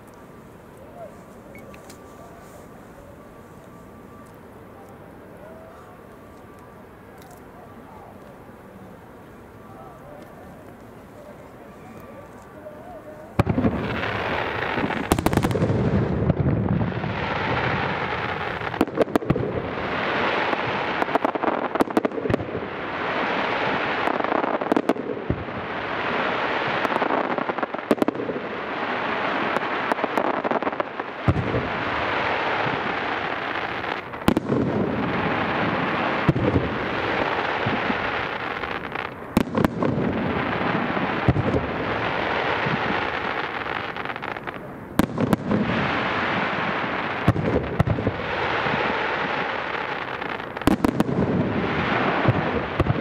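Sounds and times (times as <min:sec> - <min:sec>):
echoing booms: 0:13.4 - 0:19.7
sharp firework bangs: 0:13.4 - 0:22.5, 0:31.2 - 0:33.0, 0:34.0 - 0:49.0, 0:50.4 - 0:53.0.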